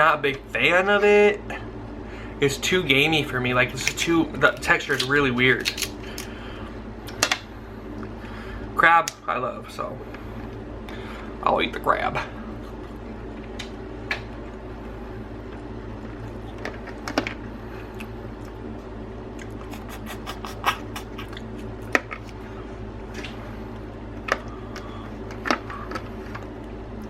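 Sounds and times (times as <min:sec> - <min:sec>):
low background hum: 0:00.0 - 0:27.0
crab shells cracking: 0:03.9 - 0:06.3.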